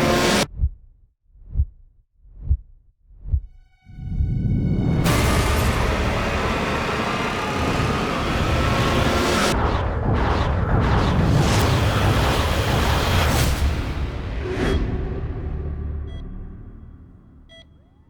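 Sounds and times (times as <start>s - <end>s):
music: 3.5s - 9.6s, 12.4s - 18.0s
booms and explosions: 5.0s - 14.4s.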